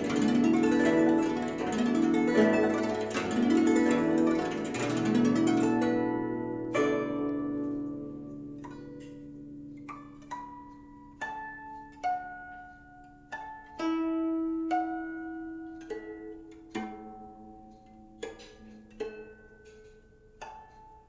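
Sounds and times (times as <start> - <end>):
plucked zither notes: 0.0 - 21.0.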